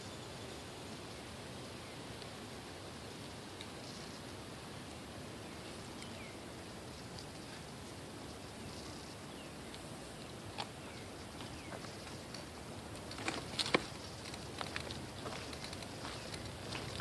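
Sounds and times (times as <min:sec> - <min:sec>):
faint bird chirps: 0:04.0 - 0:12.4.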